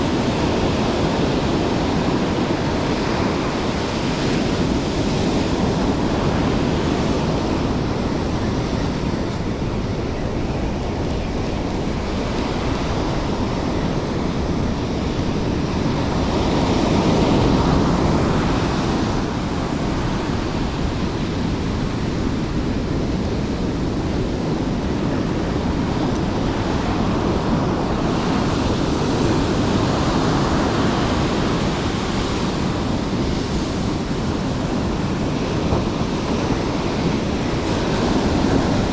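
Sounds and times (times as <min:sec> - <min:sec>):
surf breaking on shore: 0:00.0 - 0:38.9
wind rumbling on microphone: 0:00.0 - 0:38.9.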